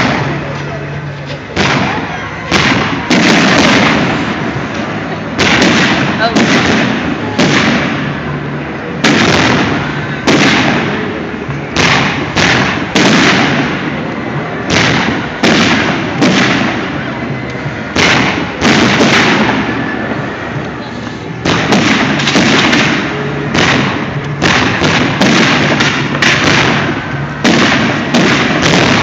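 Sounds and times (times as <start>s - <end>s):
aerial firework bangs: 1.5s - 4.6s, 5.4s - 8.2s, 9.0s - 11.1s, 11.8s - 14.0s, 14.6s - 16.9s, 17.9s - 19.8s, 21.4s - 29.0s.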